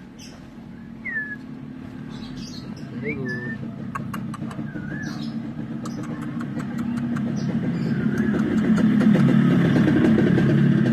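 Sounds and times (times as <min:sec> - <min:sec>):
vehicle engine running: 0:00.0 - 0:10.9
sharp clicks: 0:05.8 - 0:07.4.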